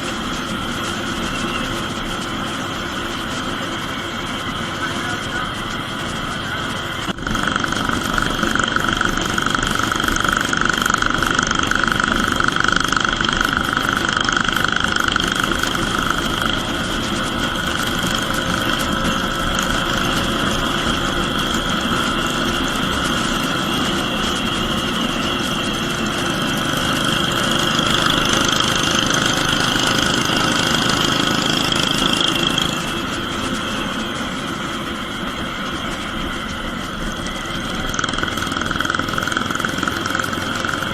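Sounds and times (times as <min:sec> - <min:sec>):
motorcycle engine cruising: 0:07.2 - 0:40.9.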